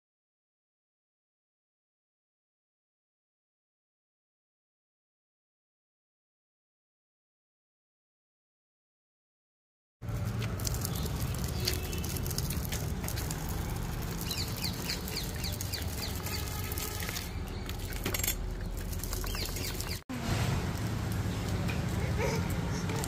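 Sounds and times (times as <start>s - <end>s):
birds chirping: 10.2s - 20.0s, 21.2s - 23.0s.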